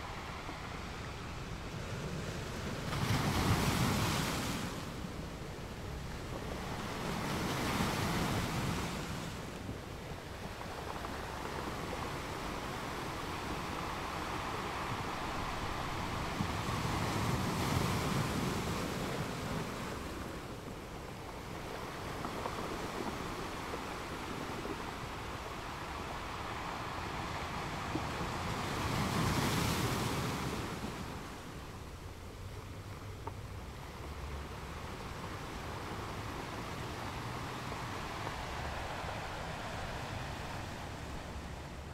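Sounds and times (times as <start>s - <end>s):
choppy sea water: 0.0s - 41.9s
wind buffeting microphone: 0.0s - 41.9s.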